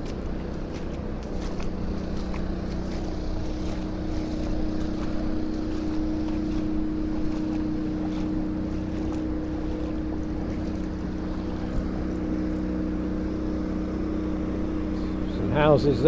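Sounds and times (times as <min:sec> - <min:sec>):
river rushing: 0:00.0 - 0:12.4
steady motor hum: 0:00.0 - 0:16.0.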